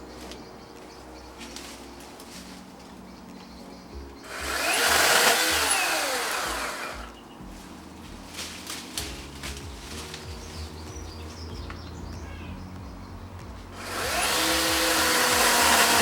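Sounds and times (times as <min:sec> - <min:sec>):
electric chainsaw cutting a branch: 0:04.3 - 0:07.2, 0:13.8 - 0:16.0.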